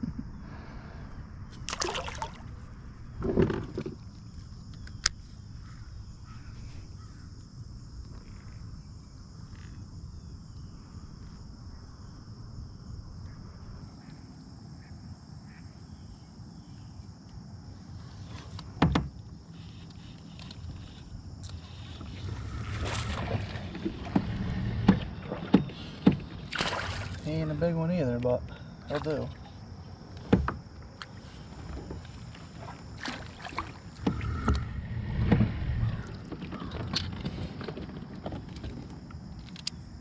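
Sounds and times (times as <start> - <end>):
low rumble: 33.9 - 36.8.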